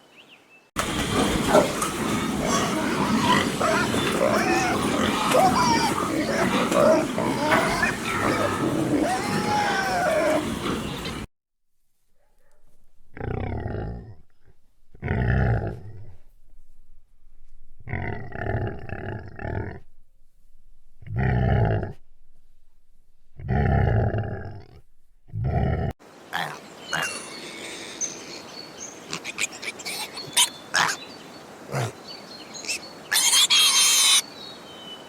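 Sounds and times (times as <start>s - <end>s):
birds chirping: 0.0s - 11.3s, 26.2s - 35.0s
outdoor ambience: 0.0s - 35.0s
large animal roaring: 0.8s - 11.3s, 13.1s - 16.3s, 17.8s - 20.1s, 20.9s - 22.6s, 23.3s - 25.9s.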